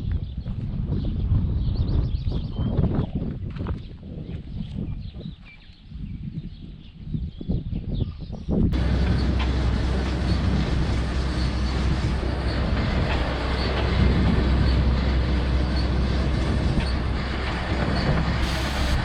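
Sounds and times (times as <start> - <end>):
tractor diesel engine rumbling: 8.8 - 19.0.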